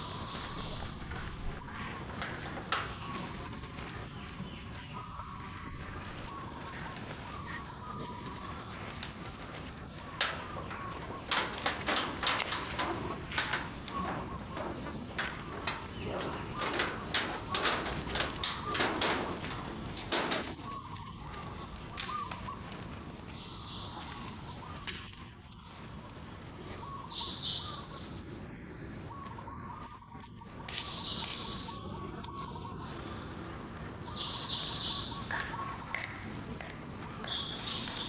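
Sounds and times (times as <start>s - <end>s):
birds calling: 0.0s - 25.2s
insects calling: 0.0s - 38.0s
sharp clicks and rustles: 6.8s - 21.2s.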